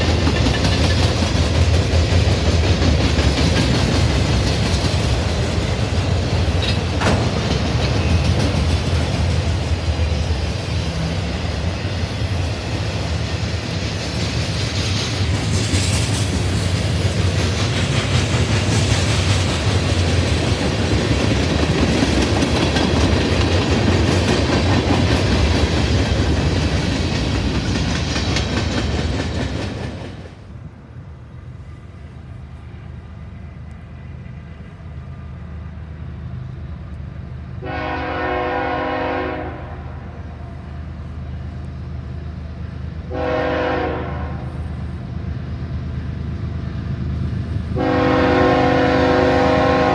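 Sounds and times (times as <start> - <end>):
train wheels rumbling on rails: 0.0 - 49.9
locomotive horn: 37.6 - 40.1, 43.1 - 44.6, 47.7 - 49.9.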